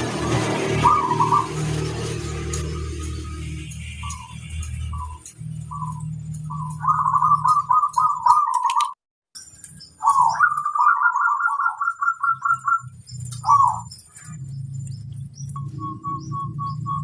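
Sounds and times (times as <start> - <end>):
dove cooing: 0.7 - 1.8, 4.9 - 9.0, 10.0 - 14.3.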